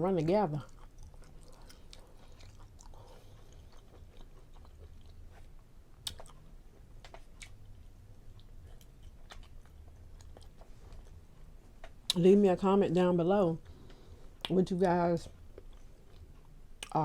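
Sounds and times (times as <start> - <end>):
person chewing food: 0.5 - 12.2, 15.3 - 17.0.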